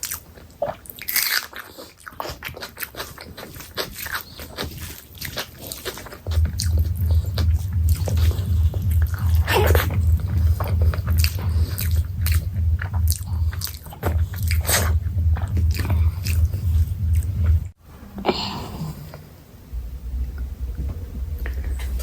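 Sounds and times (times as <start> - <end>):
wet chewing and lip smacks: 0.0 - 17.8
steady low hum: 4.4 - 22.0.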